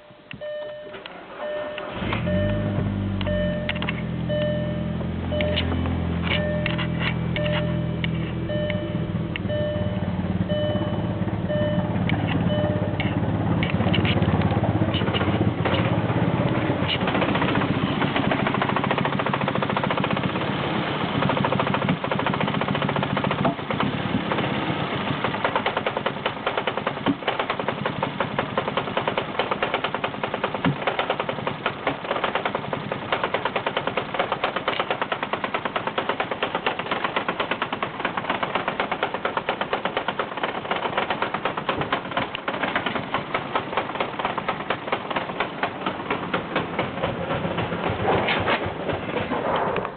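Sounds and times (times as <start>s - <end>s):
short electronic chime: 0.0s - 13.1s
car engine running roughly: 1.3s - 49.9s.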